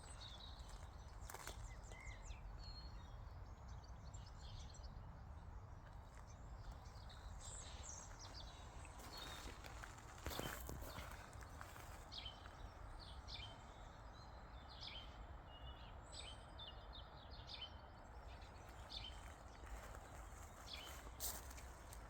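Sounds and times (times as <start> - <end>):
small birds chirping: 0.0 - 22.0
rustle: 18.6 - 22.0.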